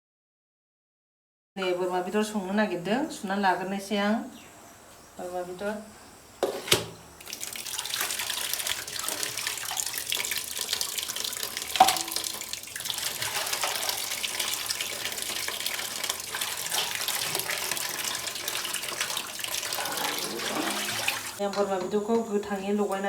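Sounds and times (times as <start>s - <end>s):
tap water running into sink: 6.7s - 22.3s.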